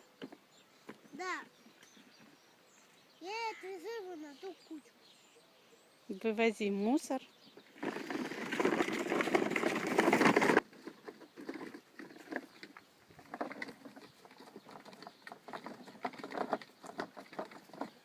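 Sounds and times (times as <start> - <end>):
plastic toy wheels scraping soil: 7.6 - 18.0.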